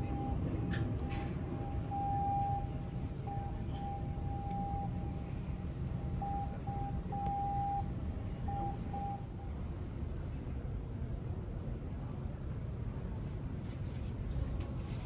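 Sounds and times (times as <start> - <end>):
cruise ship low rumble: 0.0 - 15.0.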